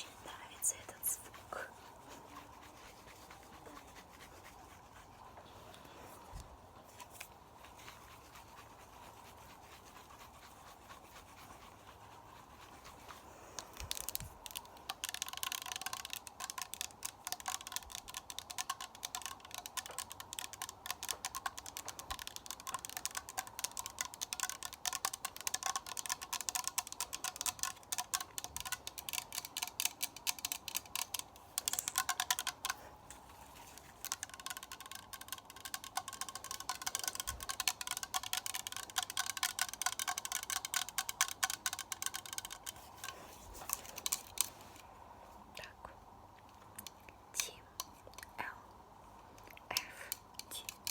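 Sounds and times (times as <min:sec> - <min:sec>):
fast clicking and tapping: 0:07.1 - 0:44.6, 0:49.7 - 0:50.9.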